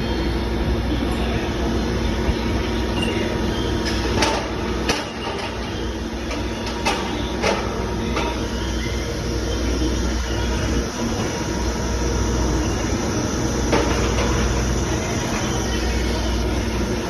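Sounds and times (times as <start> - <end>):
milling machine humming: 0.0 - 17.0
sharp clanks and knocks: 3.8 - 8.5, 13.7 - 14.5.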